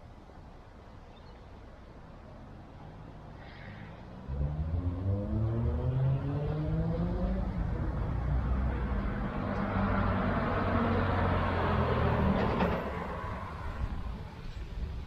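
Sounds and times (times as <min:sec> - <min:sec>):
car tyre and road noise: 0:00.0 - 0:15.0
car engine revving: 0:04.2 - 0:13.5.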